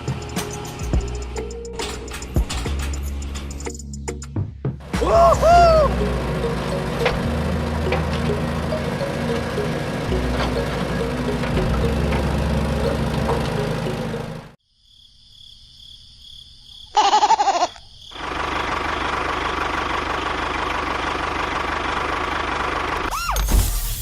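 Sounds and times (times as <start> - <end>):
motor humming: 4.9 - 14.6
noisy running sound: 4.9 - 14.6.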